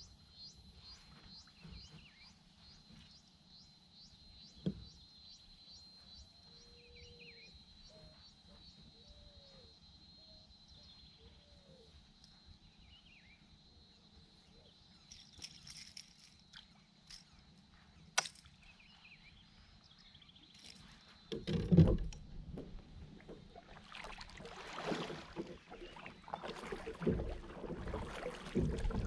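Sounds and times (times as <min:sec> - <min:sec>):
faint birdsong chirps and whistles: 0:00.0 - 0:21.4, 0:25.7 - 0:26.8.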